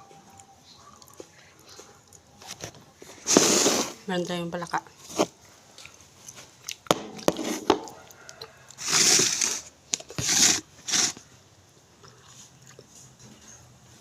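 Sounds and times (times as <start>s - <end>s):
rooster crowing: 7.7s - 9.4s.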